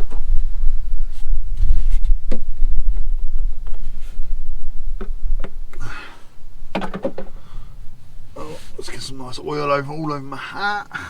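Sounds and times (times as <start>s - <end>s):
plastic bottle clicks and knocks: 6.7s - 7.4s.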